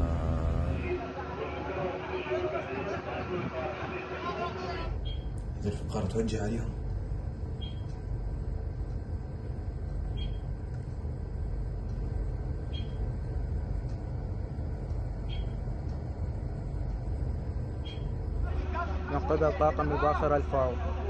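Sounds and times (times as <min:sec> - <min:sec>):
low rumble of vessel: 0:00.0 - 0:01.8.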